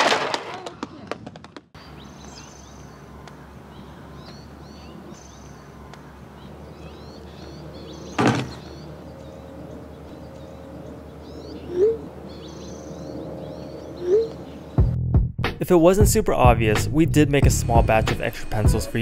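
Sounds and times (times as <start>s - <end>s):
small birds chirping: 1.8s - 14.9s
loud thump: 8.2s - 8.6s.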